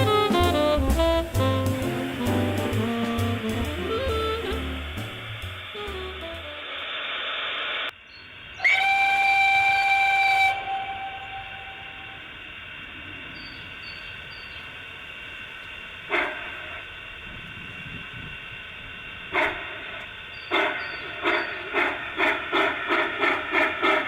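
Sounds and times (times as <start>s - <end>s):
steam whistle blast: 0.0s - 7.4s, 8.6s - 12.5s, 16.1s - 16.9s
steady steam hiss: 0.0s - 24.0s.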